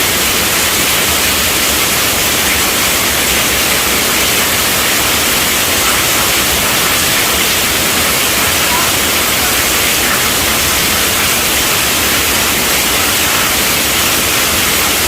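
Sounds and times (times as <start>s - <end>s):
heavy rain on tent roof: 0.0s - 15.0s.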